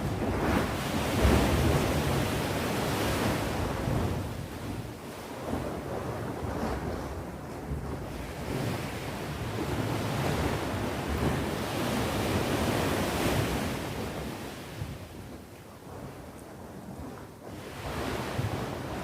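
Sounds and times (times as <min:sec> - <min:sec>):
ocean waves breaking: 0:00.0 - 0:06.9
wind noise on microphone: 0:00.0 - 0:19.0.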